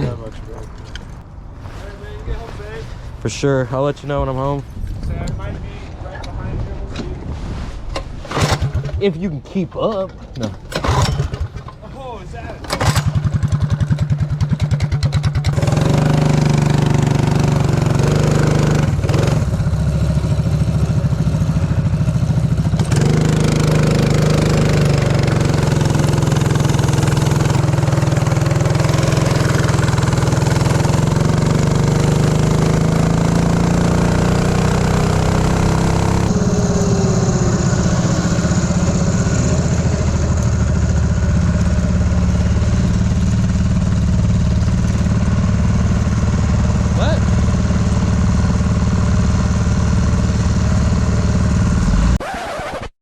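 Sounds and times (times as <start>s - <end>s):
small engine revving: 10.7s - 11.6s, 12.7s - 52.9s.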